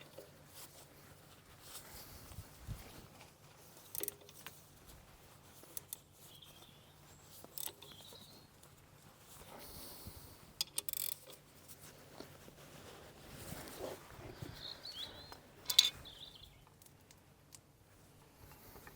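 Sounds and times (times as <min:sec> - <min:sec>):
spanner clicking on metal: 0:03.9 - 0:04.4, 0:10.6 - 0:11.4, 0:15.6 - 0:16.0.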